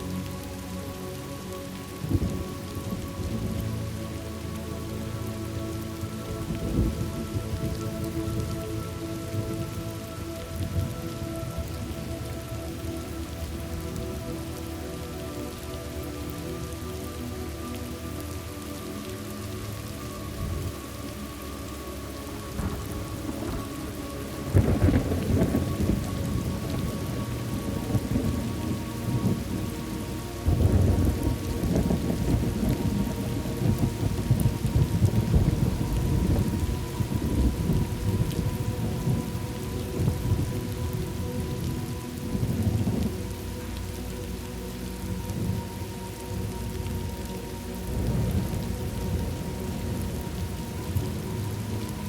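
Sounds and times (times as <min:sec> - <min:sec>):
steady rain: 0:00.0 - 0:52.0
rolling thunder: 0:22.6 - 0:29.7, 0:30.4 - 0:43.2
loud thunderclap: 0:24.5 - 0:26.8.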